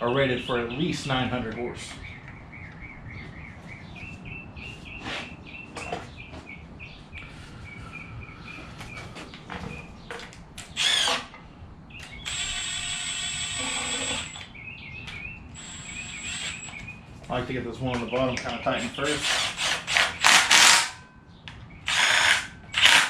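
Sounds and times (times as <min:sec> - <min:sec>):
bird chirping: 0:00.0 - 0:12.8, 0:13.8 - 0:19.2.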